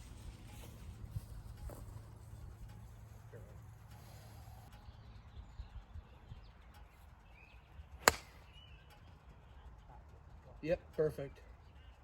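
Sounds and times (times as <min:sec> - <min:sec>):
golf club striking ball: 0:08.0 - 0:08.6.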